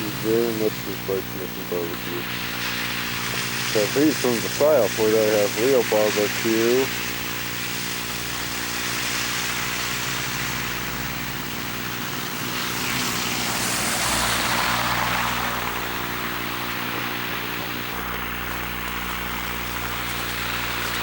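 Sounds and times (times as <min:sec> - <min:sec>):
steady electrical buzz: 0:00.0 - 0:21.0
passing vehicle rushing: 0:11.2 - 0:18.8.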